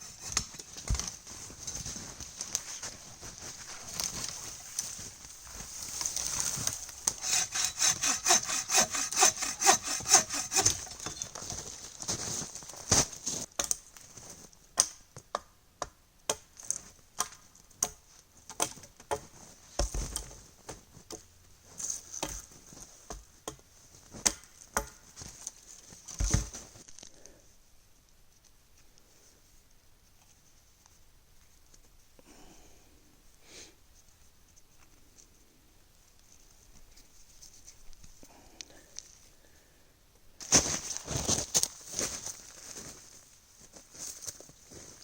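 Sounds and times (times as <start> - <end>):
hand saw cutting wood: 0.0 - 0.6, 7.0 - 11.2.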